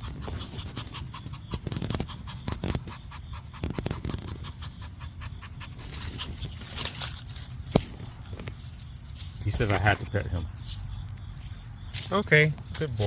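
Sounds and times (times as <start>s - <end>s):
cat panting rapidly: 0.0s - 6.8s.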